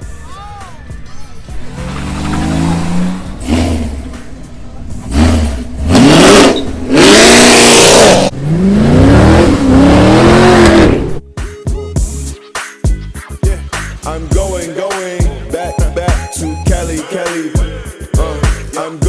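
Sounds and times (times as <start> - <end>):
music: 0.0 - 2.9, 10.4 - 19.0
car engine revving: 1.1 - 11.2.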